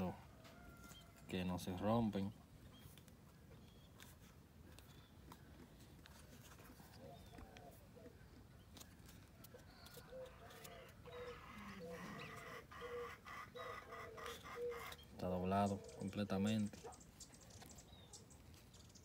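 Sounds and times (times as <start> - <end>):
short bird calls: 9.6 - 18.4.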